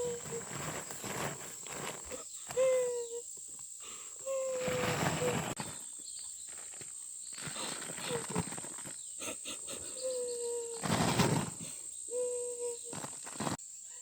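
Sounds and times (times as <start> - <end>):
rustling: 0.0 - 3.0, 4.2 - 13.6
high insect drone: 0.0 - 14.0.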